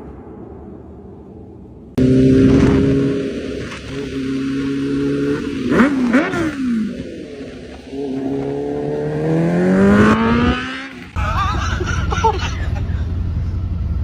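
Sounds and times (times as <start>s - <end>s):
motorcycle engine revving: 2.0s - 11.2s.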